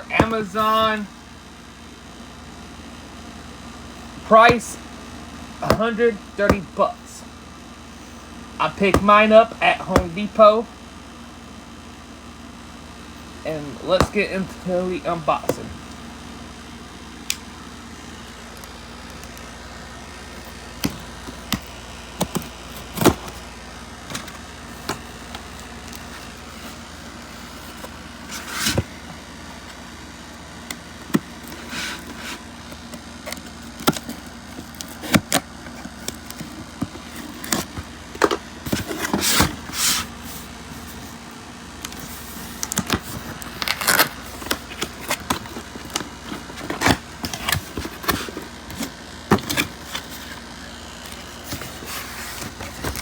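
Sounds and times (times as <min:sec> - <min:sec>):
cardboard and packaging rustling: 0:00.0 - 0:01.1, 0:03.9 - 0:04.8, 0:08.0 - 0:10.4, 0:13.8 - 0:16.0, 0:20.2 - 0:30.0, 0:30.6 - 0:53.0.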